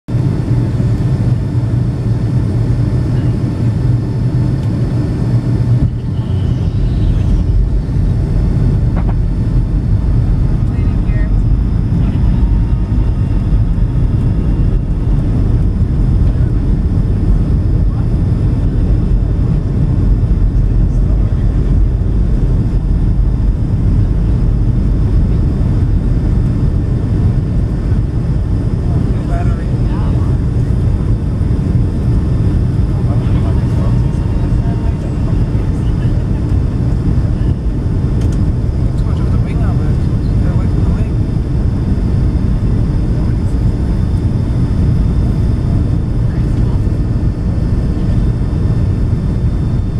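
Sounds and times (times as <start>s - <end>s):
jet engine and airflow rumble: 0.1s - 49.9s
faint high whine: 5.2s - 49.9s.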